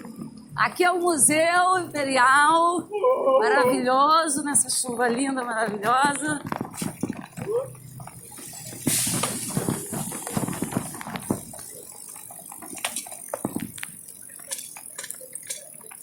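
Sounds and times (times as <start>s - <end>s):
scattered clicks and knocks: 4.6s - 16.0s
wet street hiss in rain: 7.8s - 16.0s.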